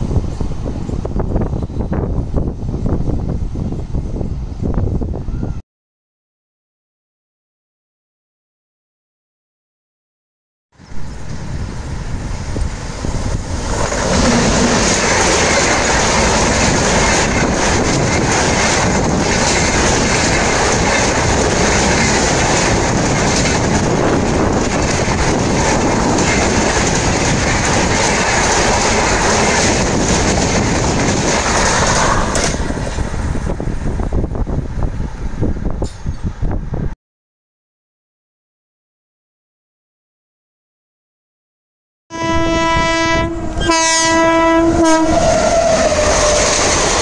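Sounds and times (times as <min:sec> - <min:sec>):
train passing at high speed: 0:00.0 - 0:05.6, 0:10.8 - 0:37.0, 0:42.1 - 0:47.0.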